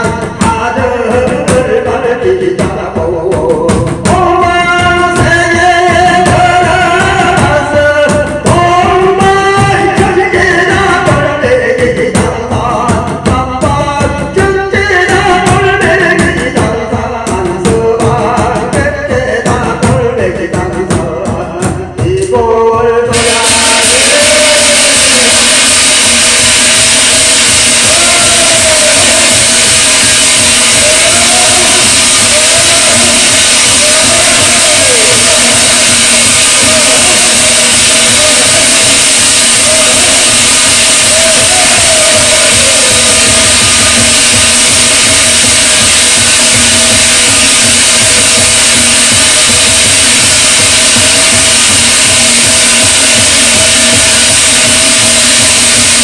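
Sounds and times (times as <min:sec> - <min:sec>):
man chanting: 0:00.0 - 0:45.4
drum beats: 0:00.0 - 0:56.0
steady hiss: 0:23.2 - 0:56.0.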